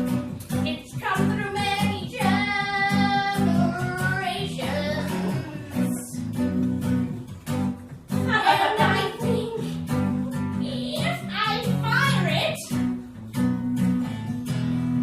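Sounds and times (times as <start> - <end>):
strummed guitar: 0.0 - 15.0
person singing: 0.7 - 6.4, 8.4 - 12.3.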